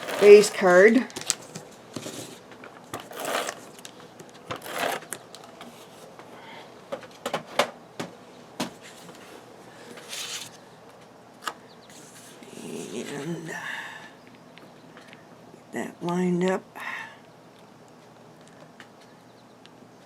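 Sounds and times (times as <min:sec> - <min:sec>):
paper rustling: 0:10.0 - 0:10.6.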